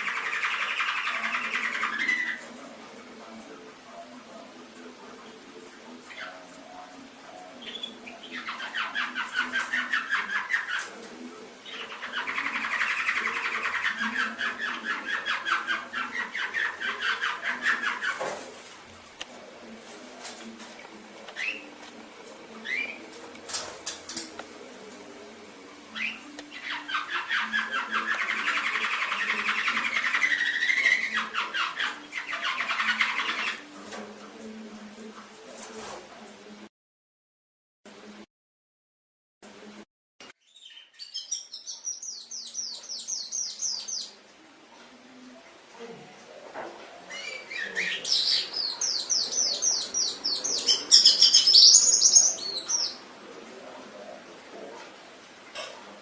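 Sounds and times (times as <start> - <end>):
canary singing trills: 0.0 - 2.5, 7.3 - 10.9, 11.6 - 18.2, 22.6 - 23.2, 25.9 - 33.7, 40.4 - 44.2, 47.1 - 53.1.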